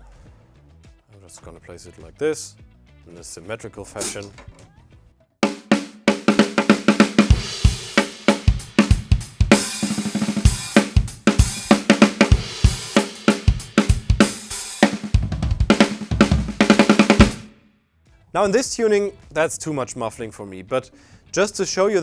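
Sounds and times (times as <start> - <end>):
muffled snare drum: 4.0 - 4.6, 5.4 - 17.6
drum kit groove: 4.0 - 4.8, 5.4 - 17.6.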